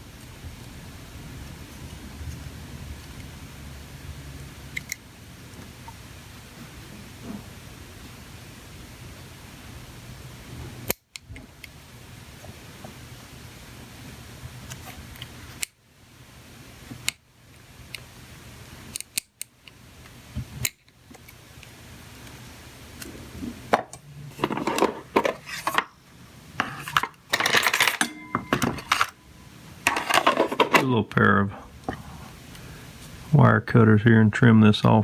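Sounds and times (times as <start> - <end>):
tools scraping on bench: 23.8 - 26.0, 26.6 - 29.2, 29.8 - 30.9
metal hand tools clinking: 26.6 - 29.2, 29.9 - 30.9.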